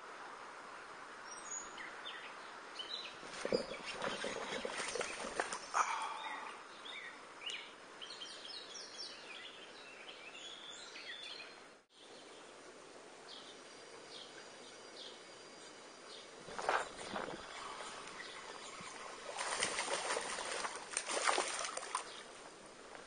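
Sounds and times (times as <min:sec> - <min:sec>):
faint outdoor ambience: 0:00.0 - 0:23.0
songbirds chirping: 0:00.6 - 0:23.0.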